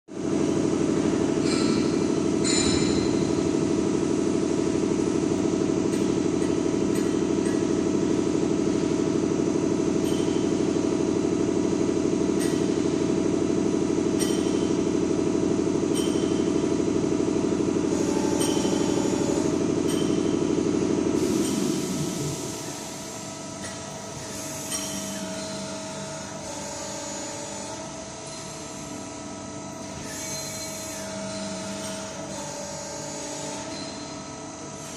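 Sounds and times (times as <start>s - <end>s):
hydraulic pump humming: 15.6s - 27.8s.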